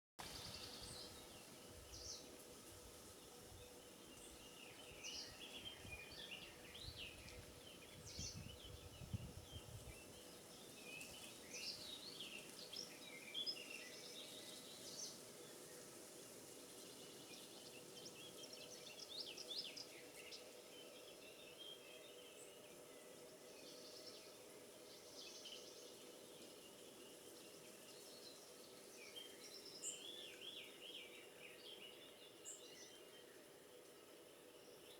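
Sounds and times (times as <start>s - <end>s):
small birds chirping and trilling: 0.3s - 15.8s
low rumble of wind: 5.7s - 10.2s.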